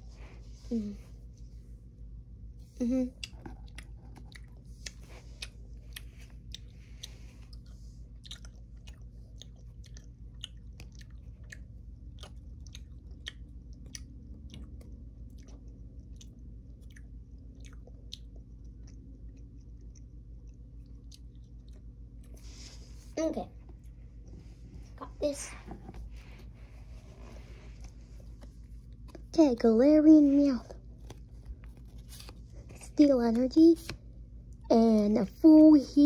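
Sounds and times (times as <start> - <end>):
steady low hum: 0.0 - 36.0
candy chewing mouth clicks: 3.2 - 22.4.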